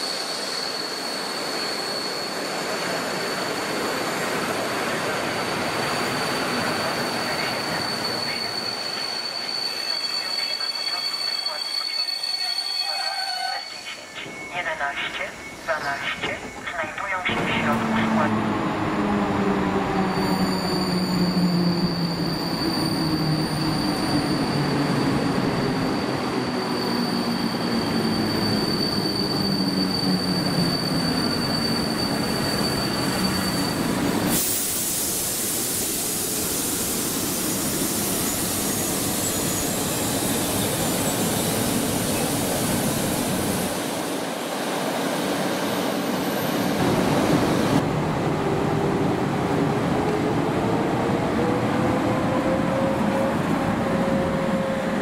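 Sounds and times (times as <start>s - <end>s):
thin high squeal: 6.2s - 14.6s.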